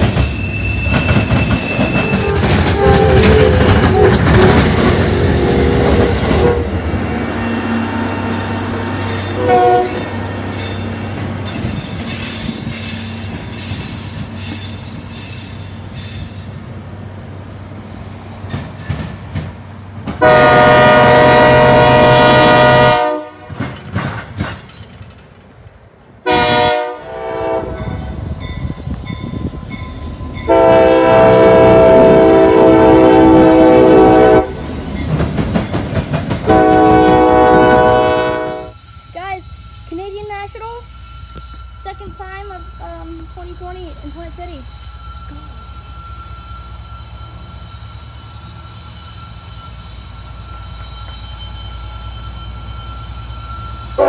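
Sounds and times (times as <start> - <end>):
train rumbling past: 0.0 - 54.0
train horn blowing: 2.0 - 10.3, 20.2 - 23.6, 26.2 - 28.2, 30.4 - 34.6, 36.4 - 38.8.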